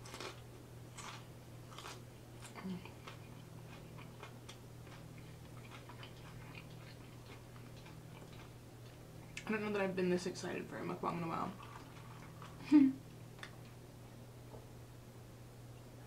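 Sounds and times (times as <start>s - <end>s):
faint low hum: 0.0s - 16.0s
close chewing mouth clicks and smacks: 3.2s - 9.5s.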